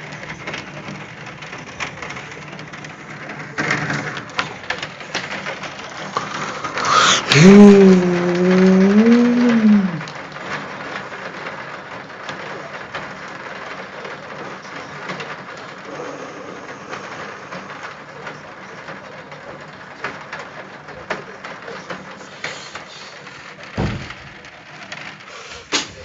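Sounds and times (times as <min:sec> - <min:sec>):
hailstones ticking: 0:00.0 - 0:26.0
rain hissing: 0:00.0 - 0:26.0
long held vocal sound: 0:06.7 - 0:10.1.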